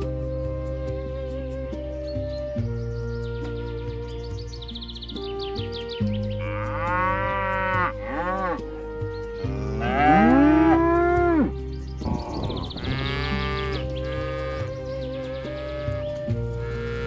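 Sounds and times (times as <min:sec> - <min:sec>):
soft background music: 0:00.0 - 0:17.0
cows mooing: 0:06.4 - 0:08.8, 0:09.4 - 0:17.0.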